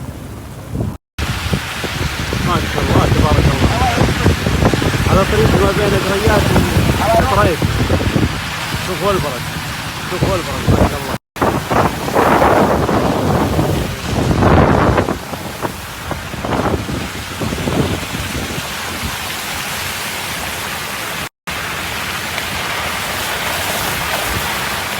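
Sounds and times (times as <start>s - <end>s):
hail and heavy rain falling: 1.2s - 11.2s, 16.9s - 24.9s.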